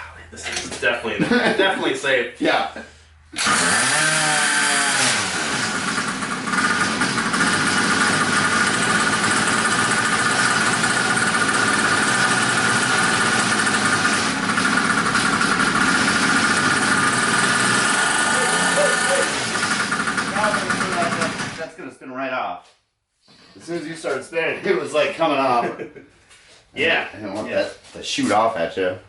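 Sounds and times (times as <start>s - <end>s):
two-stroke engine running: 3.4s - 21.6s.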